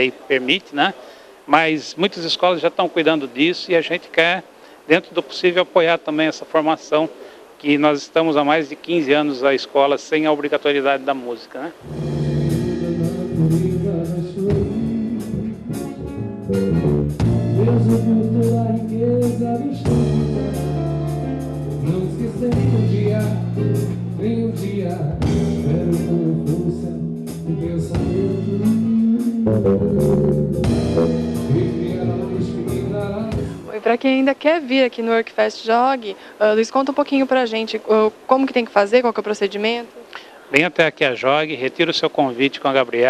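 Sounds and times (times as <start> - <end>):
band music with guitar: 11.8 - 33.8
person singing: 11.9 - 15.8, 17.5 - 21.2, 21.8 - 33.7.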